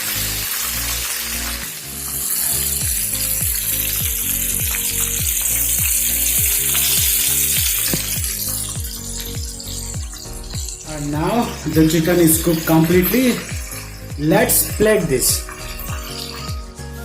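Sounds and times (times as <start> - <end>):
chicken deep-frying in oil: 0.0 - 16.4
background music: 0.0 - 17.0.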